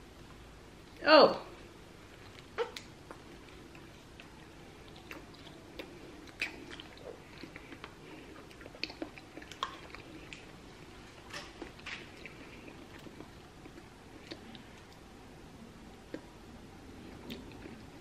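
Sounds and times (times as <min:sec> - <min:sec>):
wet mouth clicks chewing jelly: 0:02.2 - 0:10.5.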